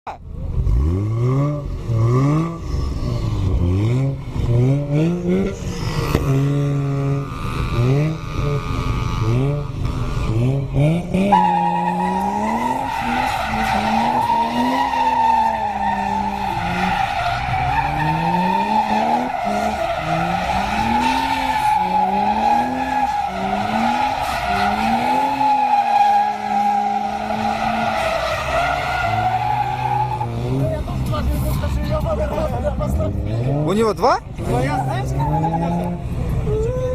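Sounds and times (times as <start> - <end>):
car engine revving: 0.1 - 36.9
tyre squeal: 11.3 - 30.7.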